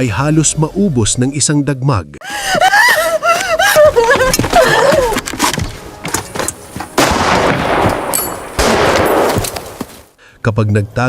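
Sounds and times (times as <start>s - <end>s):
gunshots: 7.0s - 9.8s.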